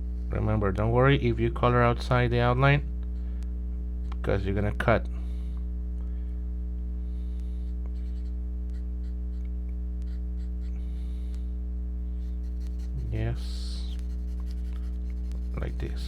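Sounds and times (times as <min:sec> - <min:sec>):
electrical mains hum: 0:00.0 - 0:16.0
marker scratching on paper: 0:07.9 - 0:10.7, 0:12.2 - 0:13.2, 0:13.9 - 0:16.0.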